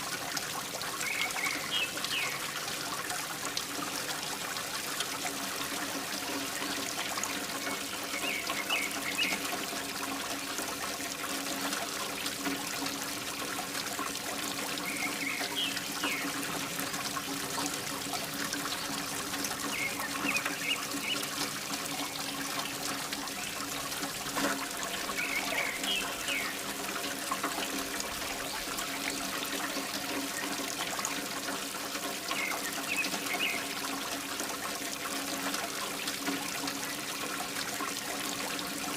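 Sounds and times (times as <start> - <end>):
water pouring and trickling: 0.0 - 38.9.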